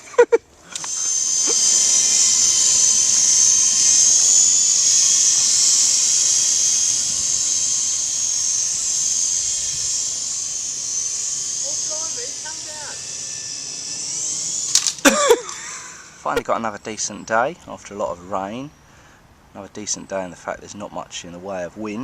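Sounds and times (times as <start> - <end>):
toy helicopter rotors whining: 0.0 - 22.0.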